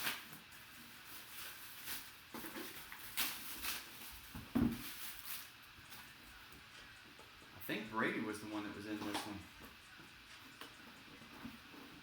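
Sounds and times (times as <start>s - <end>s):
packaging rustling and crinkling: 0.0s - 6.1s.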